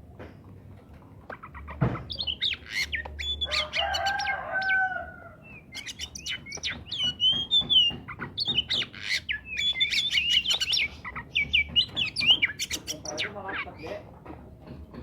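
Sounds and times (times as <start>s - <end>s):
bird whistling song: 1.3s - 13.9s
rooster crowing: 3.5s - 5.4s.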